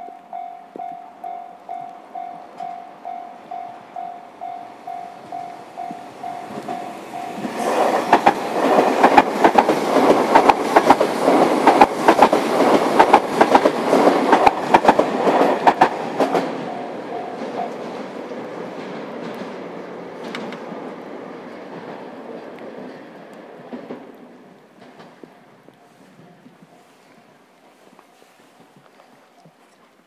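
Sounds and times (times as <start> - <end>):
level-crossing warning bell: 0.0 - 8.0, 16.2 - 18.1, 25.2 - 28.5
train wheels clacking over rail joints: 4.8 - 25.6.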